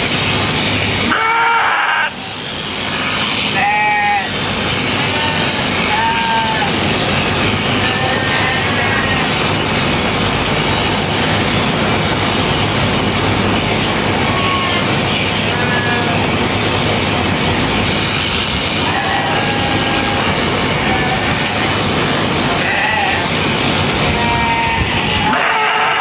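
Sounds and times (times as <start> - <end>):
sheep-shearing machine running: 0.0 - 26.0.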